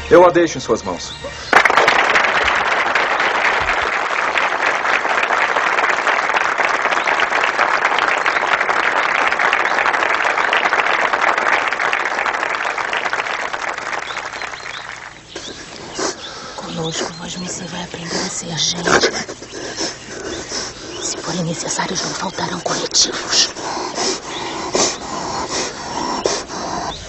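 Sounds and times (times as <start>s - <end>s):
crowd applauding: 1.4s - 16.0s.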